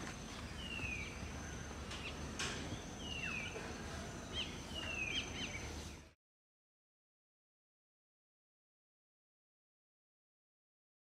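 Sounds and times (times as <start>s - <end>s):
low background hum: 0.0s - 6.2s
birds whistling: 0.3s - 6.1s.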